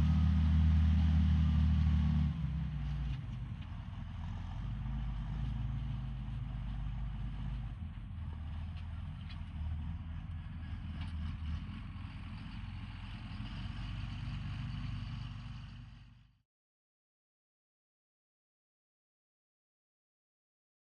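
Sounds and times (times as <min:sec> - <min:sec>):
tractor diesel engine running: 0:00.0 - 0:16.3.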